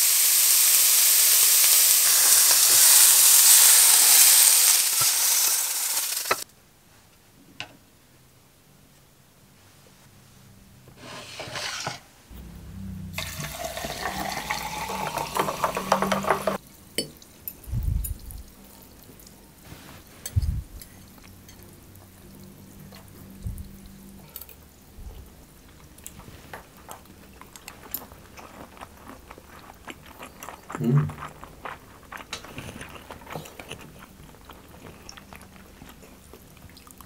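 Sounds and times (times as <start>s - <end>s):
water poured into a glass: 13.2s - 16.6s.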